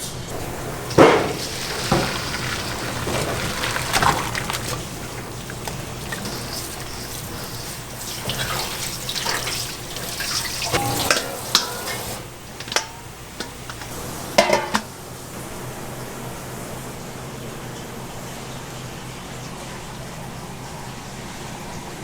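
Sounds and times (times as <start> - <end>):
utensils and dishes clinking: 0.3 - 15.2
water running from tap: 0.3 - 22.0.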